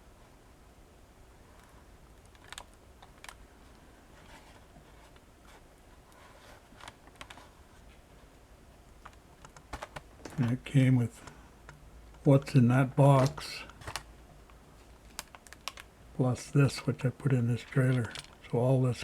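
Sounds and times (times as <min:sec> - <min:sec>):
toy pieces and packaging clicking: 0:15.0 - 0:15.9, 0:17.6 - 0:18.5.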